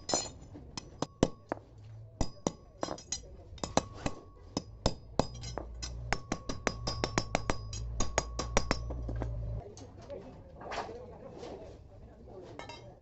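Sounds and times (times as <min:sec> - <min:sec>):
hammer striking steel: 0:00.0 - 0:01.6, 0:02.2 - 0:09.3
low steady hum: 0:00.0 - 0:09.8.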